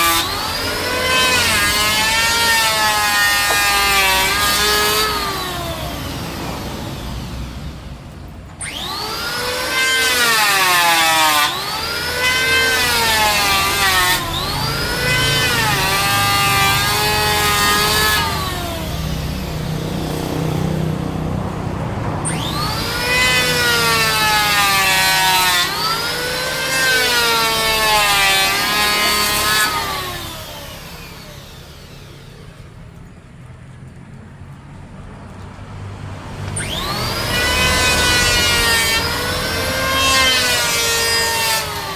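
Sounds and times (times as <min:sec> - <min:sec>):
power saw motor whining: 0:00.0 - 0:33.2, 0:36.3 - 0:41.9.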